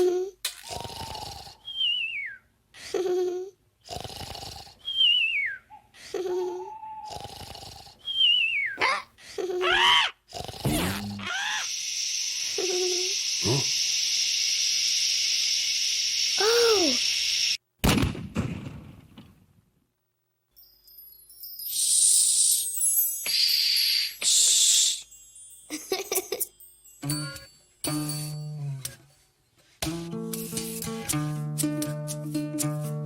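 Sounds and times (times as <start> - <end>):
falling whistle: 1.7 - 2.4, 4.9 - 5.7
steady hiss: 11.6 - 17.6.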